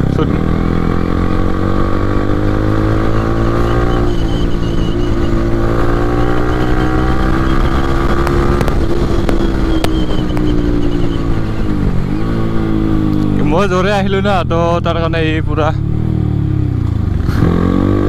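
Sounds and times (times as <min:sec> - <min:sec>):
motorcycle engine running: 0:00.0 - 0:18.0
sharp clicks: 0:07.7 - 0:11.2.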